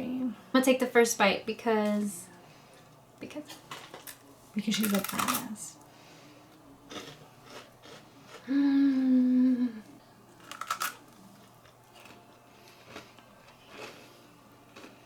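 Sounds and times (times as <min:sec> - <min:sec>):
teeth crunching wafer bar: 0:03.7 - 0:05.5, 0:06.9 - 0:08.4, 0:10.3 - 0:14.1, 0:14.7 - 0:15.0
person humming: 0:08.4 - 0:10.0.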